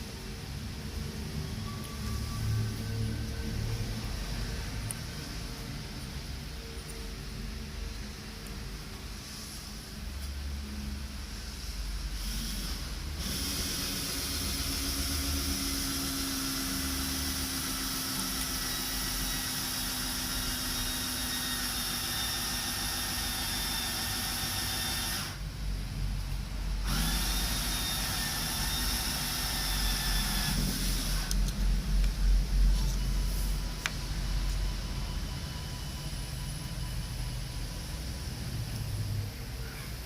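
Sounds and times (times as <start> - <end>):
electric power tool whining: 26.8 - 31.4.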